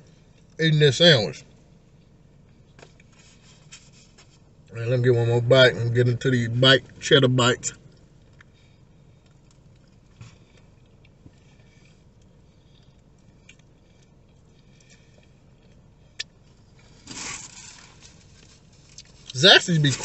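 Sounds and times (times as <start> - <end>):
wet chewing sounds: 7.8 - 17.0.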